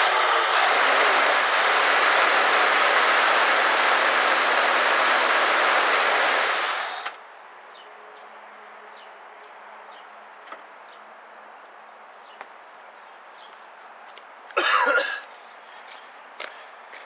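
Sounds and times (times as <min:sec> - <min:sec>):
loud rasping burst: 0:00.0 - 0:07.5.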